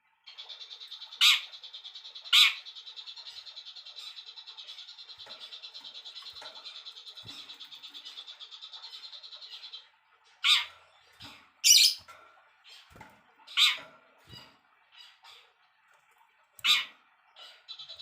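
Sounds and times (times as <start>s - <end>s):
songbird trilling and calling: 0.3s - 9.8s, 10.4s - 12.1s, 13.5s - 14.4s, 16.6s - 18.0s.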